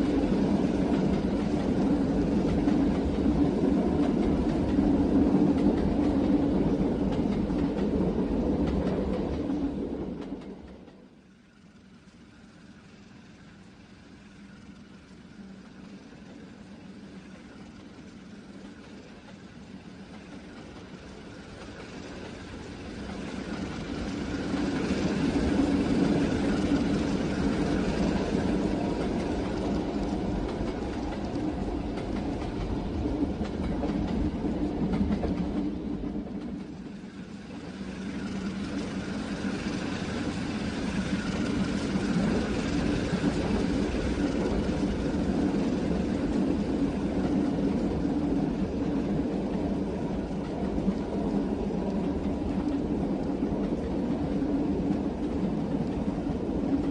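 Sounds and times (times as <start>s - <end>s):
train rumbling on rails: 0.0s - 56.9s.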